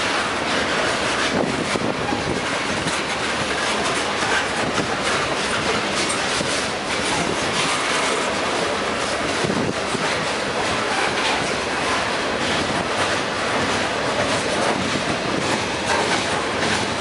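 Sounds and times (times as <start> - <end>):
freight train wheels clattering: 0.0 - 17.0.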